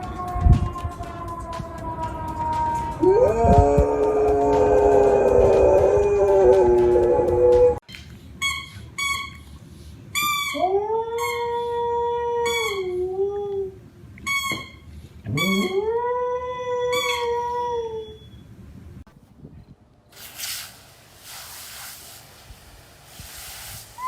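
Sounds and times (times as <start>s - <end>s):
dog howling: 0.0s - 7.8s
dog yipping: 10.2s - 11.7s, 12.4s - 13.0s, 14.3s - 15.8s, 16.9s - 18.4s.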